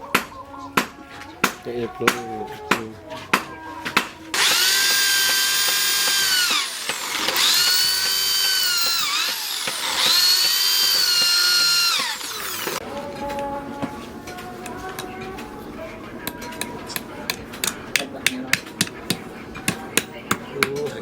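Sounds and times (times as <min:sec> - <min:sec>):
power tool motor whine: 0:04.4 - 0:12.8.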